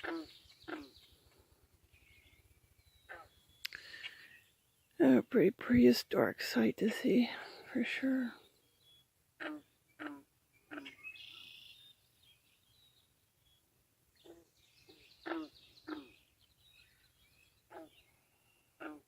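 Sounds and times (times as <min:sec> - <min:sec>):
birds calling: 0:00.0 - 0:05.4, 0:06.6 - 0:19.0
bird song: 0:00.0 - 0:19.0
faint high bird chirps: 0:07.7 - 0:13.6, 0:14.2 - 0:19.0.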